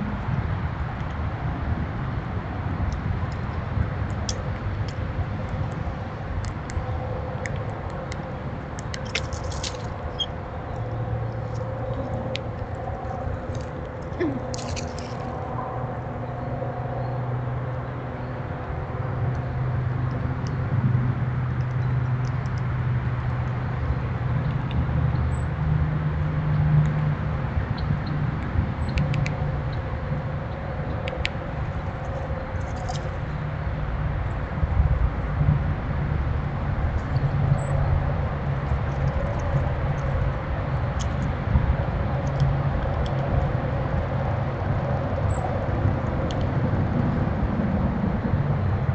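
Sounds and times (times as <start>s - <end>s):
low hum and rumble: 0.0s - 48.9s.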